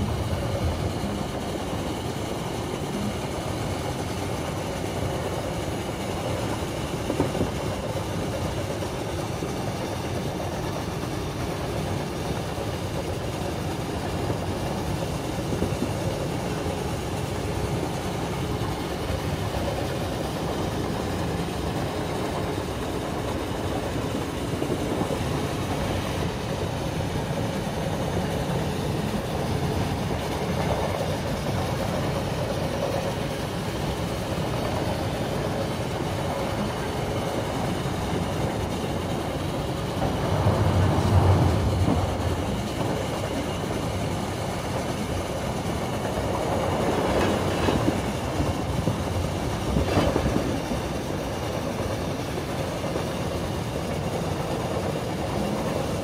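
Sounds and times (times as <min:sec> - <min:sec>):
clickety-clack over rail joints: 0:00.0 - 0:56.0
train wheels rumbling on track: 0:00.0 - 0:56.0
heavy low rumble: 0:39.8 - 0:43.3.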